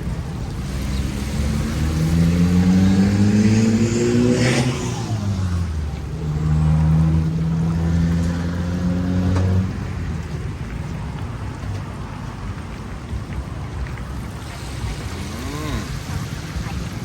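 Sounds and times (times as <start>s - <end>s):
low engine hum: 0.0s - 17.0s
vehicle engine accelerating past: 0.4s - 10.4s.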